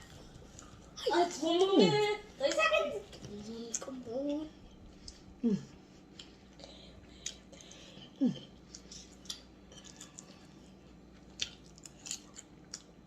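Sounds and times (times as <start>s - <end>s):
chewing clicks and smacks: 6.1s - 7.8s, 8.6s - 13.0s.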